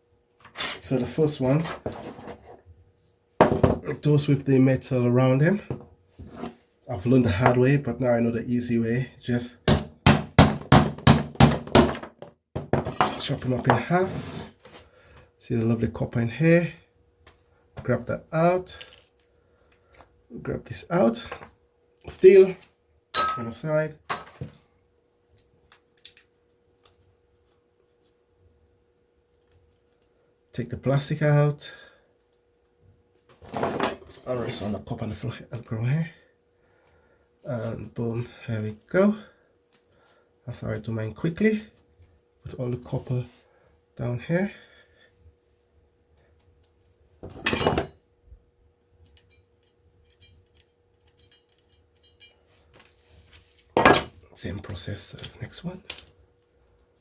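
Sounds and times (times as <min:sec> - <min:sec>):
faint steady hum: 0:12.8 - 0:57.0
metal scrap clattering onto pile: 0:47.3 - 0:47.9.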